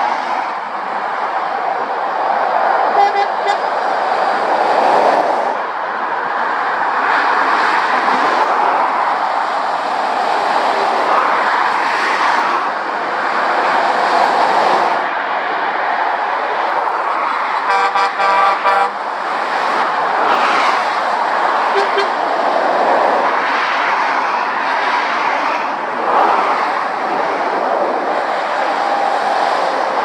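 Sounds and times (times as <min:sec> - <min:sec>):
motorway traffic passing: 0:00.0 - 0:30.0
vehicle horn short toots: 0:21.7 - 0:22.2.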